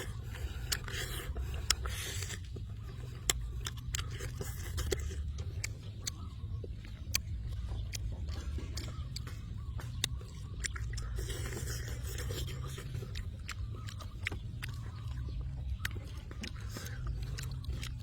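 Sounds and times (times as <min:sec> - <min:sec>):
chewing and biting food: 0:00.0 - 0:18.0
steady low rumble: 0:00.0 - 0:18.0
sharp clicks and smacks: 0:00.4 - 0:18.0.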